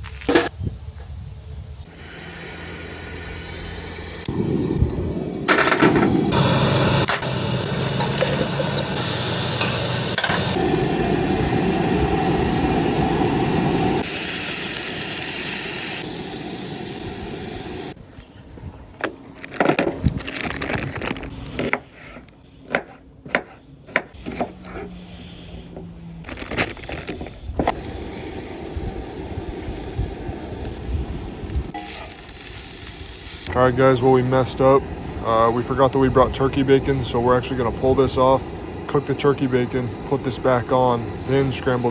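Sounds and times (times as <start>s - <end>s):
loud steady rumble: 0.3s - 14.4s, 33.4s - 41.9s.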